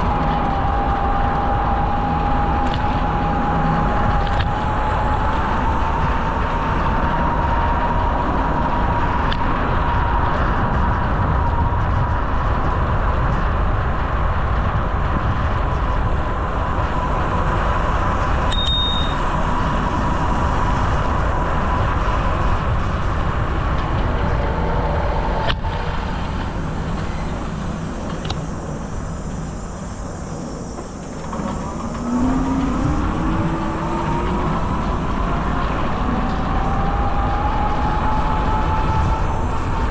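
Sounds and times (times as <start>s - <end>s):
bicycle road noise: 0.0s - 39.9s
rushing wind: 0.0s - 39.9s
steady whine: 0.0s - 39.9s
short high ping: 18.5s - 19.3s.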